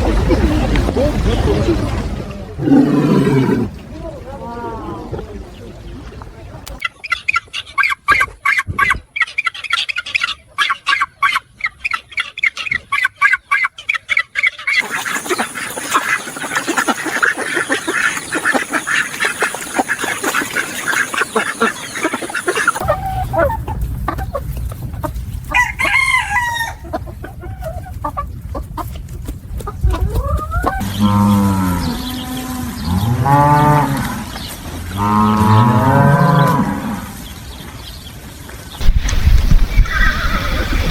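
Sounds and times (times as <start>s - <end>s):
chickens clucking: 0.0s - 37.4s, 38.8s - 40.9s
low rumble: 22.8s - 35.0s, 38.8s - 40.9s
rooster crowing: 25.5s - 27.0s.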